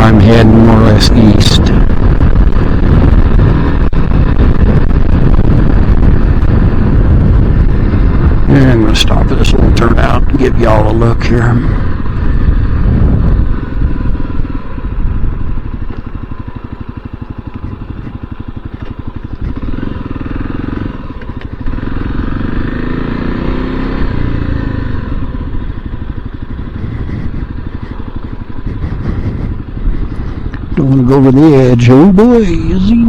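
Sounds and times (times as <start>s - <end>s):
motorcycle engine running: 0.0s - 33.0s
wind noise on microphone: 0.0s - 33.0s.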